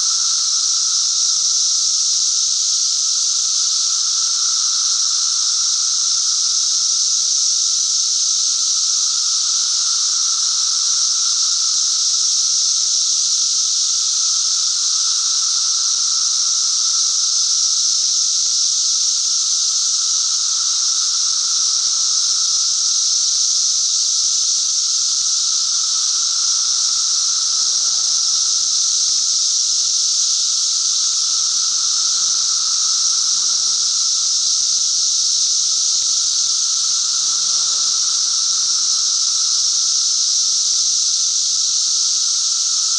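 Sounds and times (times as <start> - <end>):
cicadas buzzing: 0.0 - 42.9.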